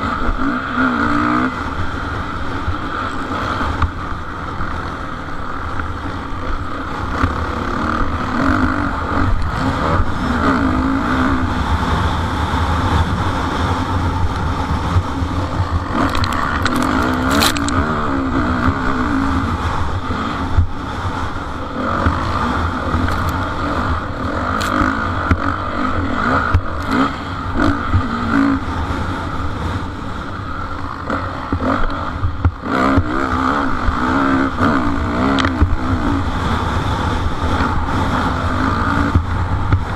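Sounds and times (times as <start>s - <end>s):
motocross engines revving: 0.0s - 39.9s
heavy low rumble: 1.4s - 33.2s
sharp clicks: 16.0s - 17.8s.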